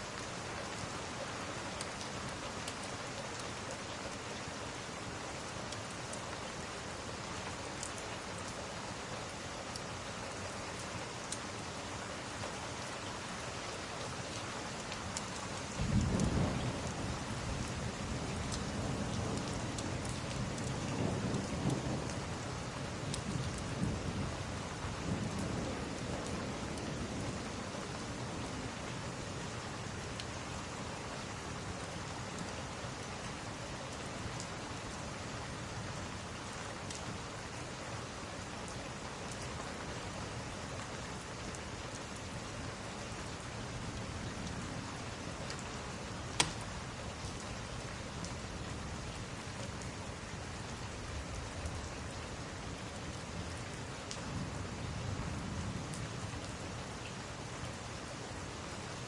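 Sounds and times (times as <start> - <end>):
steady rain: 0.0 - 59.0
sharp loud snap: 46.4 - 46.7
wood fire crackling: 46.4 - 46.9.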